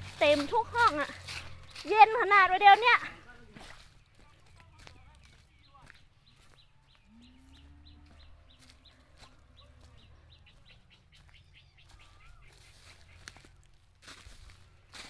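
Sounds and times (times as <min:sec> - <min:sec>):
faint bird chirping: 0:03.3 - 0:15.0.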